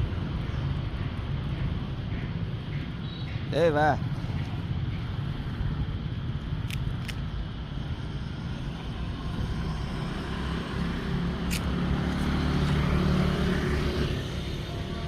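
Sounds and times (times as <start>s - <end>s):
short sharp clicks: 11.5s - 11.7s.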